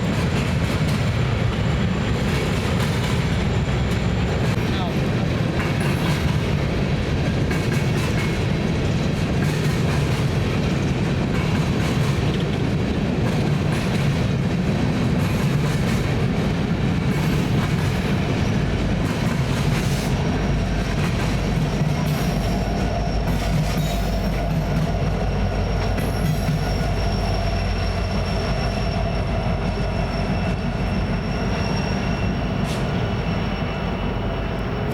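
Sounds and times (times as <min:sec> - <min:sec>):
rail joint clicks: 0:00.0 - 0:34.9
train wheels rumbling on rails: 0:00.0 - 0:34.9
high wheel squeal: 0:21.6 - 0:34.9.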